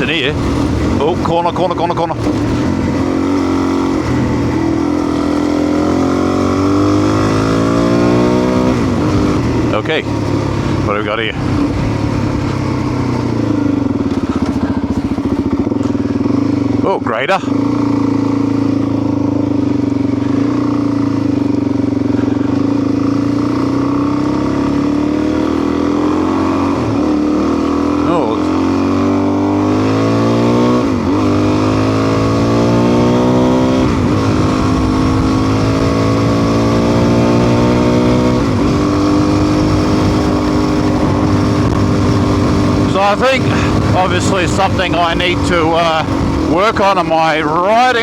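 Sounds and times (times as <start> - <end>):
wind noise: 0.0 - 15.6, 30.9 - 47.3
motorcycle engine accelerating: 0.0 - 48.0.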